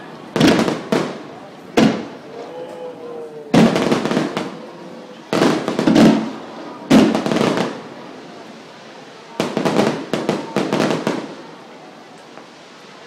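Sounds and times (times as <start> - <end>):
sharp firework cracks: 0.3 - 2.2, 3.5 - 4.7, 5.3 - 7.9, 9.4 - 11.5.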